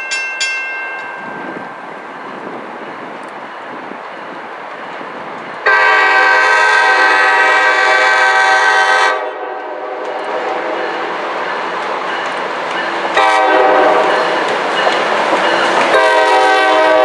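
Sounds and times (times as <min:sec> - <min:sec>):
passing train rumble: 0:00.0 - 0:17.0
train horn blast: 0:05.6 - 0:11.1, 0:13.1 - 0:14.4, 0:15.9 - 0:17.0.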